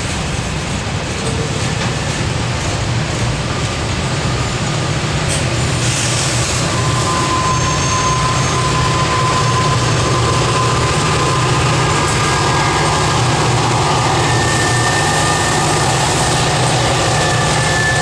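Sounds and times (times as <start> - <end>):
diesel locomotive engine rumbling: 0.0 - 18.0
wheel flange squeal: 4.3 - 18.0.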